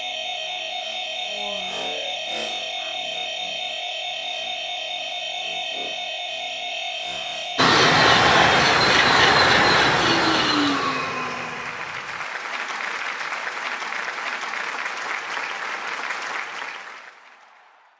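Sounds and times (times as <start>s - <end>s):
high-speed train rushing past: 7.6s - 12.3s.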